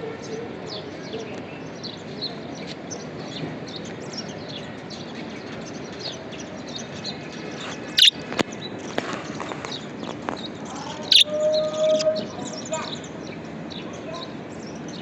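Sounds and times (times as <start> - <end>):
low background noise: 0.0 - 15.0
budgerigars chirping: 7.9 - 8.2, 11.0 - 11.3.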